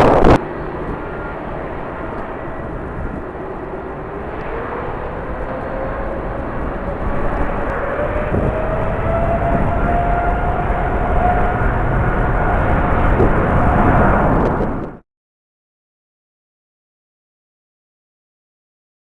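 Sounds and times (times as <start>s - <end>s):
jet engines whining: 0.0s - 15.0s
loud rush: 0.0s - 15.0s.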